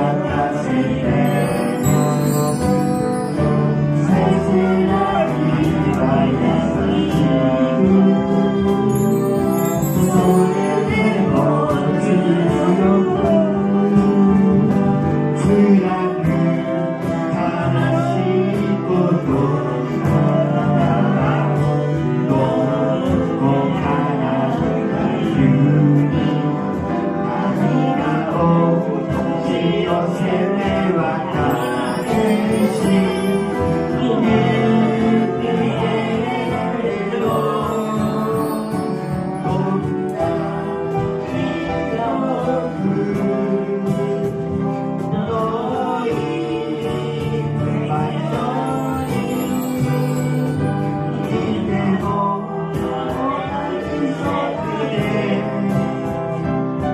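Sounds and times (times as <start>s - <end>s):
live instrumental accompaniment: 0.0s - 56.9s
person singing: 0.0s - 56.9s.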